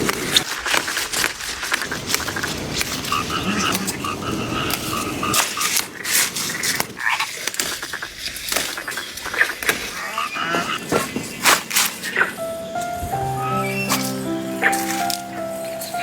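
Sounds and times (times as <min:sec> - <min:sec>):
frogs croaking: 0:03.0 - 0:05.7, 0:12.0 - 0:16.0.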